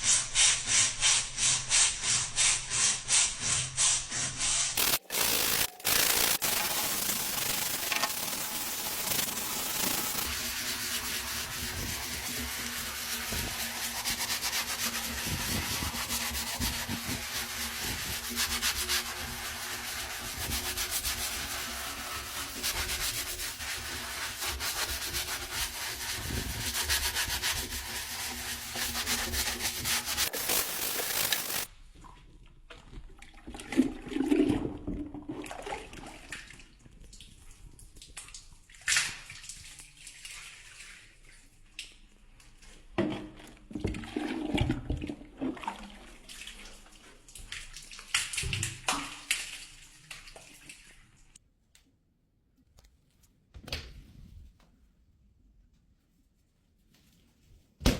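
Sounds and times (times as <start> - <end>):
brush scrubbing a surface: 0.0 - 31.7.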